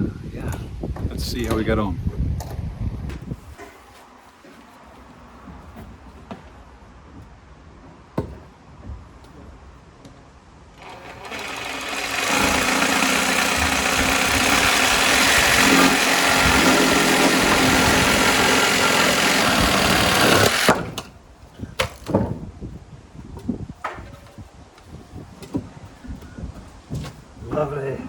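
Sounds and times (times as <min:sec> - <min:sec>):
power tool motor whine: 0:10.8 - 0:21.1
sharp knocks: 0:10.8 - 0:21.1.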